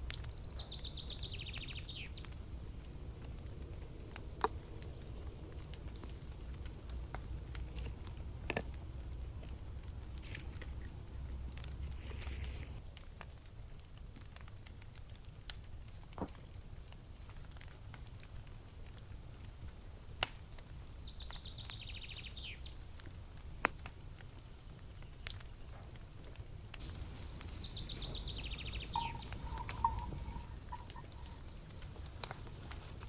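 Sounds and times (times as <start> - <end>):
campfire crackling and popping: 0.0 - 33.0
songbird trilling: 26.8 - 31.5.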